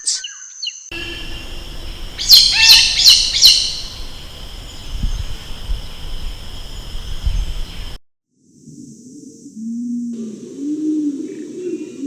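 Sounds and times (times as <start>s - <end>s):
steady high drone: 0.9s - 7.8s
bird calling sharp high notes: 0.9s - 7.9s.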